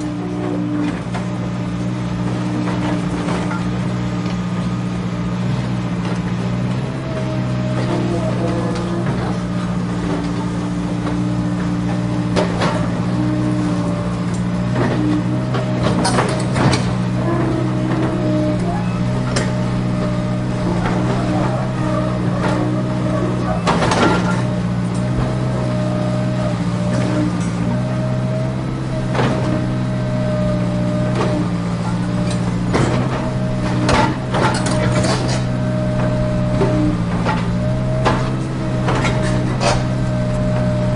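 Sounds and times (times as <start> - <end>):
toy excavator motors humming: 6.6 - 40.9
toy excavator motor hum: 15.0 - 24.8.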